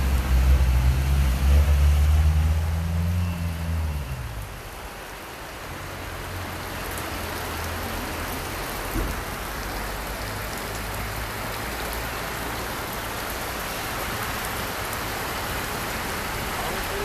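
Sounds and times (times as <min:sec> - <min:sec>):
vehicle engine: 0:00.0 - 0:08.8
heavy rain falling: 0:00.0 - 0:17.0.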